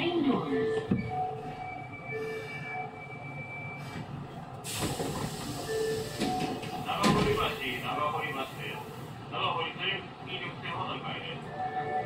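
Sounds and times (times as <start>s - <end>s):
compressed air hiss: 4.6s - 6.2s.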